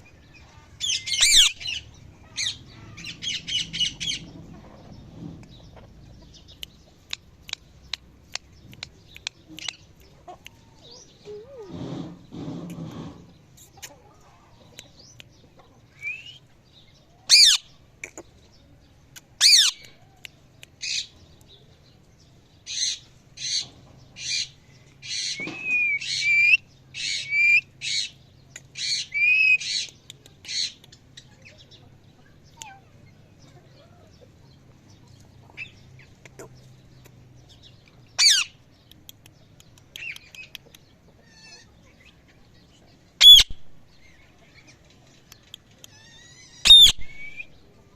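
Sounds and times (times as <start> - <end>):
parrot squawking: 0.8 - 4.2, 38.2 - 38.5, 43.2 - 43.6, 46.0 - 47.4.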